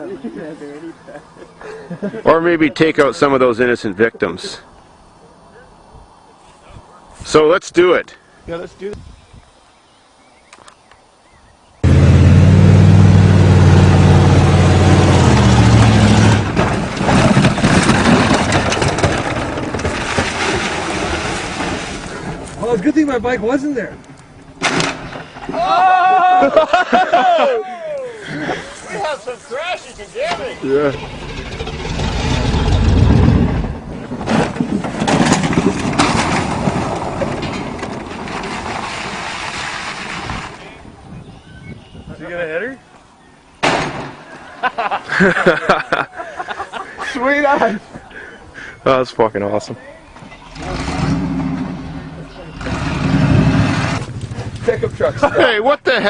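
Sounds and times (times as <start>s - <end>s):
car engine running hard: 11.8s - 16.7s
vehicle engine rumbling: 11.8s - 25.5s, 28.3s - 39.3s, 50.1s - 55.6s
rough rattling and knocks: 15.1s - 22.9s, 30.2s - 40.4s.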